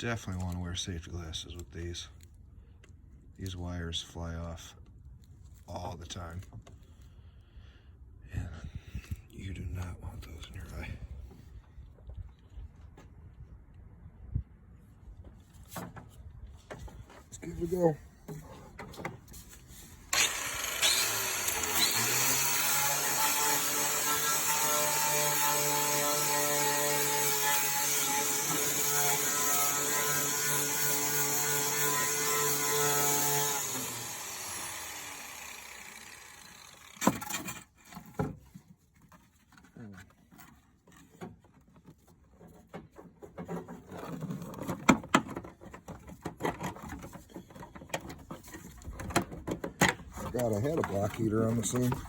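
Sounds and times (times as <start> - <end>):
wire brush power tool whine: 20.1 - 37.0.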